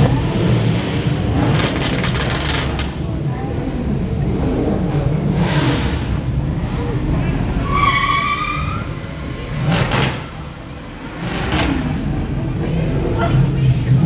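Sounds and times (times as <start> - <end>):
car engines rumbling: 0.0 - 14.0
high tire squeal: 6.8 - 11.6.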